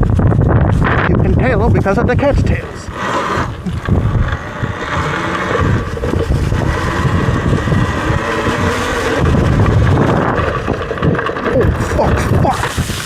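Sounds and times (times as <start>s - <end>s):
wind buffeting microphone: 0.0s - 13.0s
electric dirt bike motor: 2.2s - 13.0s
tyre noise: 2.5s - 11.6s.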